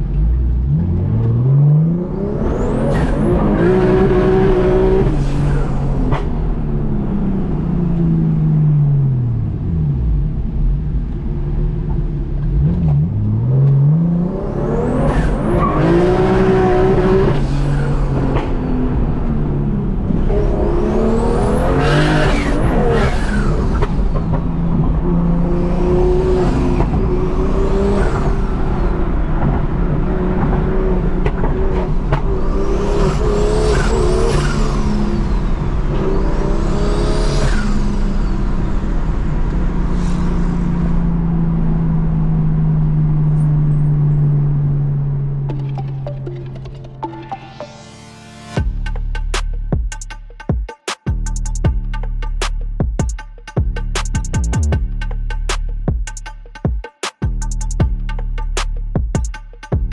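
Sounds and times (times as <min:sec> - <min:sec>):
car engine revving: 0:00.0 - 0:46.7.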